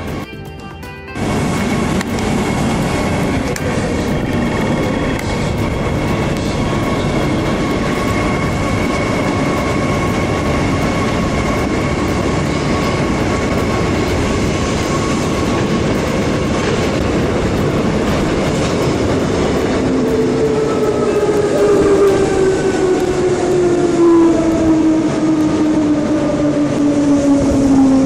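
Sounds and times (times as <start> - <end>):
electric train rumbling: 0.0 - 28.0.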